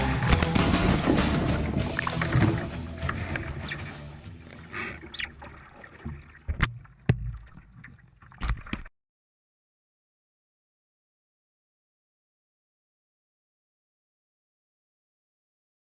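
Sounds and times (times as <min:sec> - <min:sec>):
water splashing around kayak: 0:00.0 - 0:08.9.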